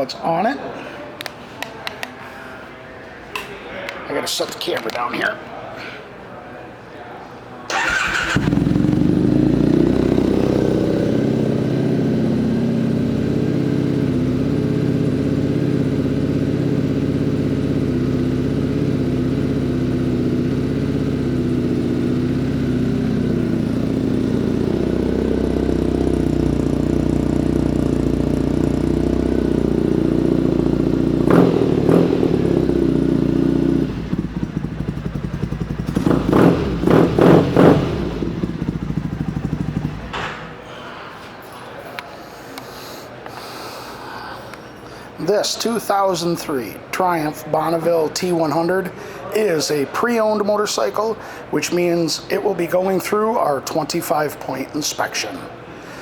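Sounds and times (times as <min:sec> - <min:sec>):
engine throttle blips: 0:07.7 - 0:40.6
motorcycle engine idling: 0:07.7 - 0:40.6.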